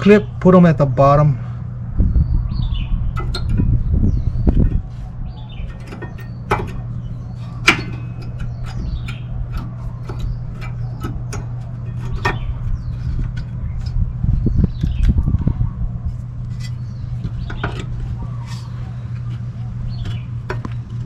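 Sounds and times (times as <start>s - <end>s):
birds chirping: 0.0s - 21.0s
steady low hum: 0.0s - 21.0s
metal clicks of brake pads: 5.6s - 12.5s, 20.0s - 21.0s.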